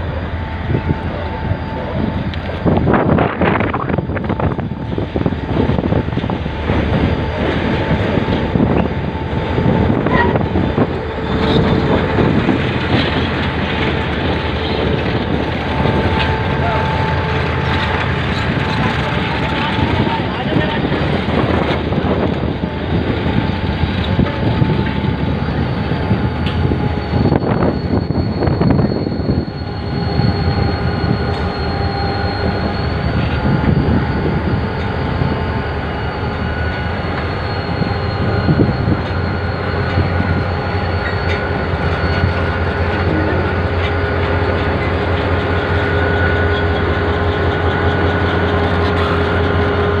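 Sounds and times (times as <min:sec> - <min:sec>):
diesel locomotive engine hum: 0:00.0 - 0:50.0
train wheels rumbling: 0:00.0 - 0:50.0
thin wheel squeal: 0:25.4 - 0:50.0.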